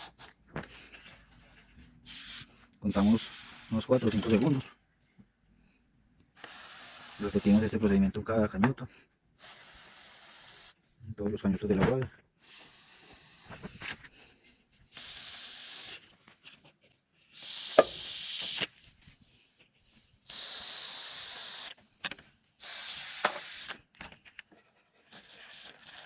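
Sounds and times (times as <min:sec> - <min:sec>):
sprayer nozzle hissing: 0:02.1 - 0:04.3, 0:06.4 - 0:07.8, 0:09.4 - 0:10.8, 0:12.4 - 0:13.6, 0:14.9 - 0:16.2, 0:17.3 - 0:18.7, 0:20.2 - 0:21.8, 0:22.6 - 0:23.8.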